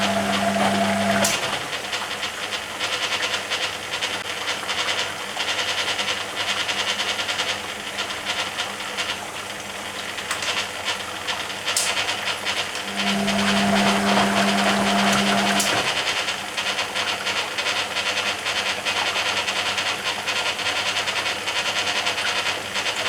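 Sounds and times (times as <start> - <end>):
water splashing in washing machine drum: 0.0 - 2.4, 11.9 - 17.0.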